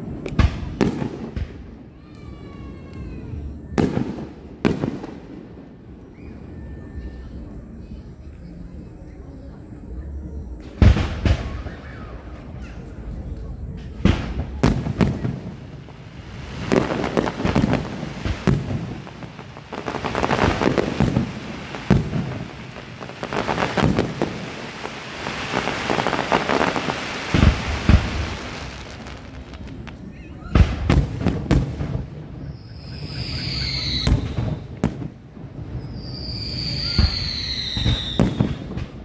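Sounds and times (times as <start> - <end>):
dense firework crackling: 0.0 - 39.0
firework shells booming: 16.6 - 35.9.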